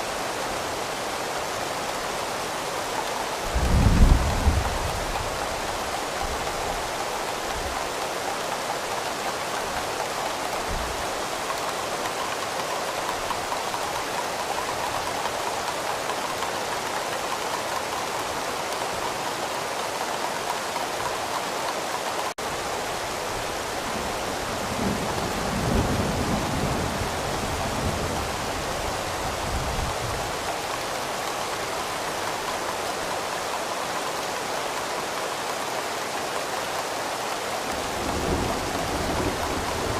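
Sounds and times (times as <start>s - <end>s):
heavy rain hiss: 0.0s - 39.9s.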